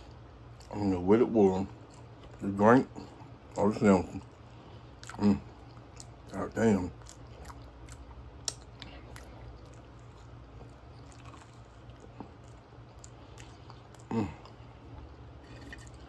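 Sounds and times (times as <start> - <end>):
low steady hum: 0.0 - 16.0
chewing with wet mouth clicks: 0.5 - 0.8, 1.7 - 16.0
short vocal sound: 14.0 - 14.5.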